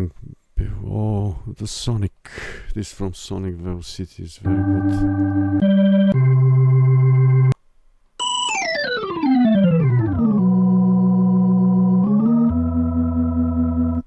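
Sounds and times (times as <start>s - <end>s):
organ glissando and chord: 4.4s - 7.6s, 8.2s - 14.0s.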